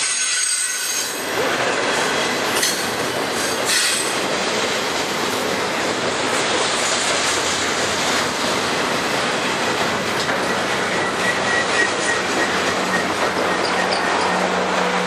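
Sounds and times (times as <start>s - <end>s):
high wheel squeal: 0.0s - 1.2s, 10.2s - 15.0s
steel wheels rumbling on rail: 0.0s - 15.0s.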